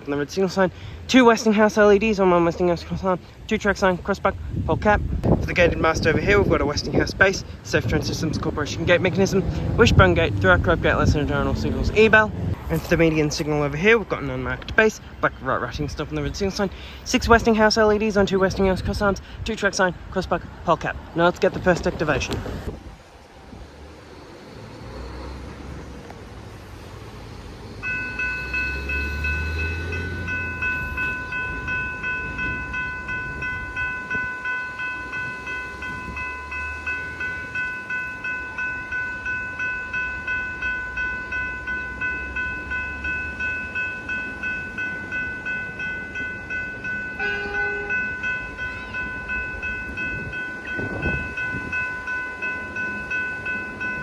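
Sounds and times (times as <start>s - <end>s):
level crossing bell ringing: 27.8s - 54.0s.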